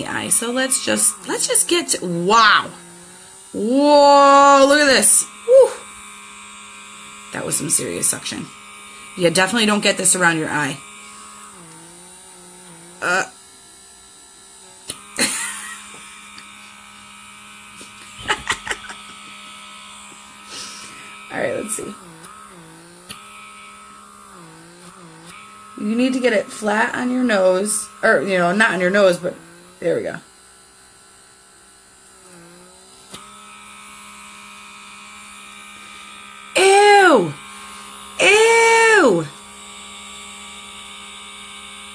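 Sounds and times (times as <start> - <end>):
small suction motor humming: 0.0 - 41.9.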